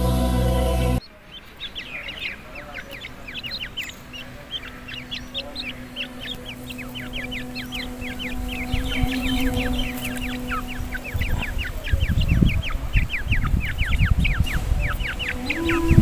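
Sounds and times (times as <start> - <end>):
birds chirping: 0.0 - 16.0
steady low hum: 0.0 - 16.0.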